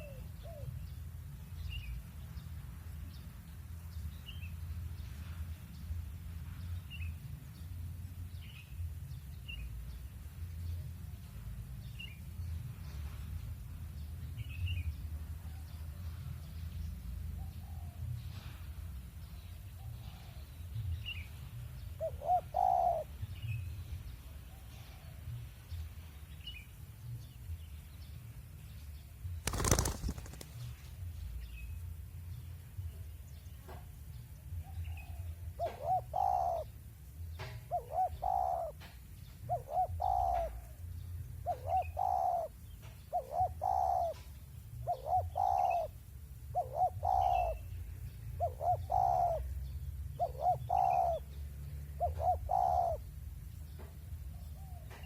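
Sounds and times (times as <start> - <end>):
doves cooing: 22.0 - 23.1, 29.5 - 30.7, 35.1 - 36.7, 37.7 - 38.8, 39.5 - 40.7, 41.5 - 42.5, 43.2 - 47.6, 48.4 - 49.5, 50.2 - 51.3, 52.0 - 53.0.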